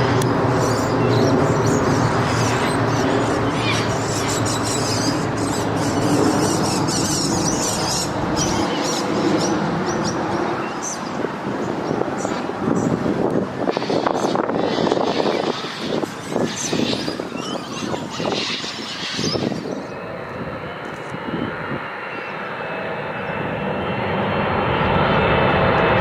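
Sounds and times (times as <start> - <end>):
airliner engines overhead: 0.0 - 26.0
small birds chirping: 0.2 - 13.0, 13.7 - 20.1.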